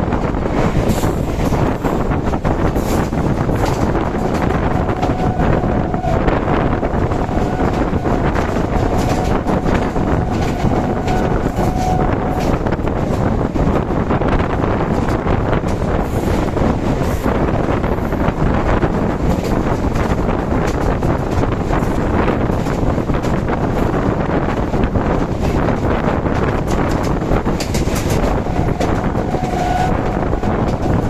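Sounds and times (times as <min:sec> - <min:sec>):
train rumbling at speed: 0:00.0 - 0:31.0
wind buffeting microphone: 0:00.0 - 0:31.0.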